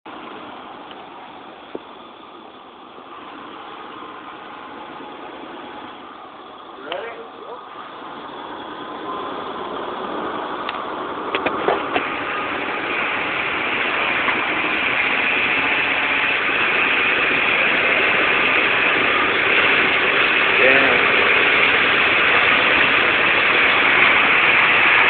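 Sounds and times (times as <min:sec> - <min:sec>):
truck engine under load: 0:00.1 - 0:25.0
sharp clicks and knocks: 0:10.6 - 0:12.1.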